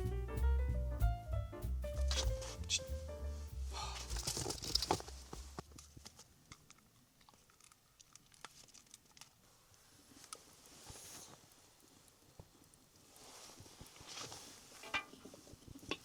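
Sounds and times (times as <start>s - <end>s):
background music: 0.0s - 4.4s
faint crunching and clicking: 3.9s - 16.0s.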